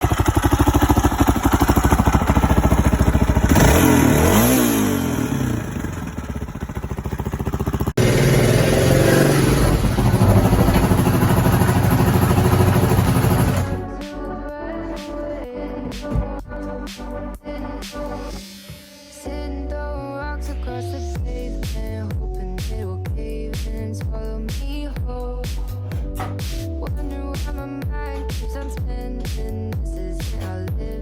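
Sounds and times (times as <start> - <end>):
motorcycle engine revving: 0.0 - 13.8
music: 13.6 - 31.0.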